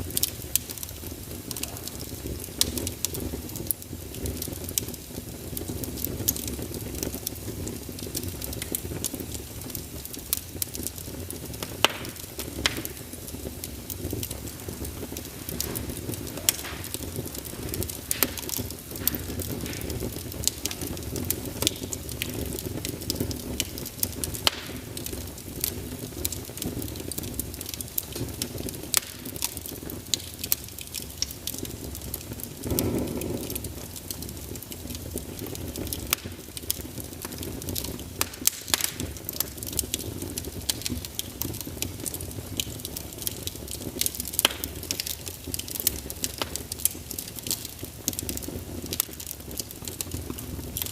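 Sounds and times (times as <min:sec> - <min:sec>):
fire crackling and popping: 0:00.0 - 0:50.9
flame puff: 0:11.6 - 0:22.6, 0:32.6 - 0:33.9.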